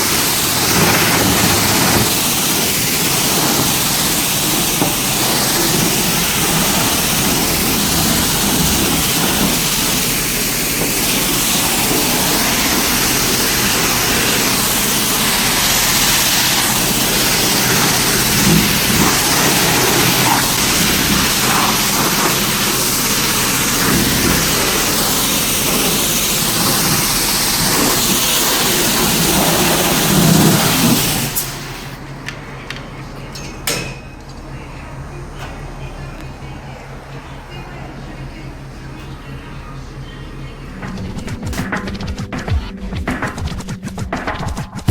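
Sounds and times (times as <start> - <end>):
pressure washer spray hissing: 0.0 - 32.0.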